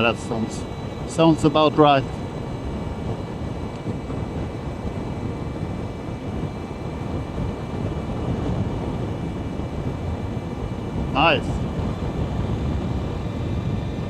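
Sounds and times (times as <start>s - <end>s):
wind and road noise: 0.0s - 14.0s.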